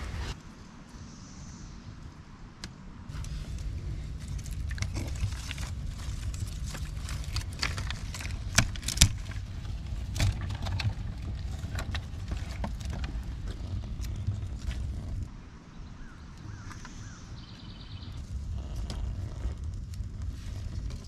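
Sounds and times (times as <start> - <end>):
low steady rumble: 0.0 - 21.0
twigs rustling and snapping: 3.1 - 15.3.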